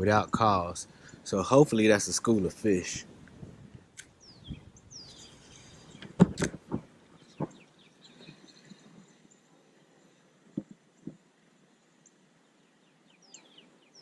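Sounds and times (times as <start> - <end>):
birds chirping: 0.0 - 14.0
sharp clicks or knocks: 6.0 - 7.6.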